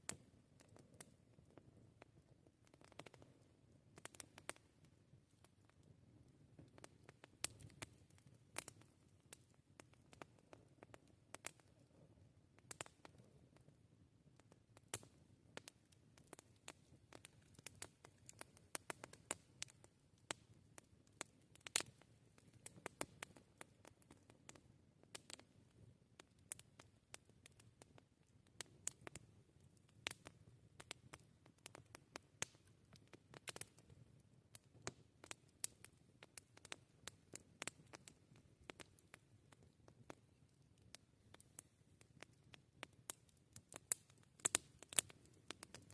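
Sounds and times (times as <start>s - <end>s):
campfire crackling and popping: 0.0s - 45.9s
low rumble of burning fire: 0.0s - 45.9s.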